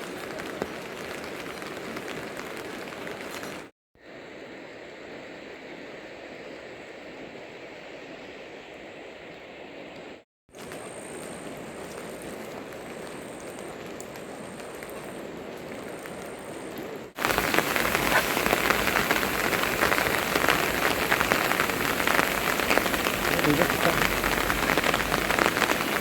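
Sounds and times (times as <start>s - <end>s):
heavy rain patter close by: 0.0s - 3.7s, 10.6s - 26.0s
rain falling: 0.0s - 3.7s, 10.6s - 26.0s.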